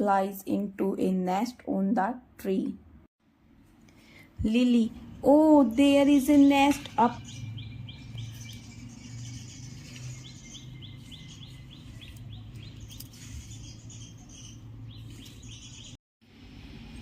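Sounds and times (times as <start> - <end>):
small birds chirping: 5.0 - 16.0.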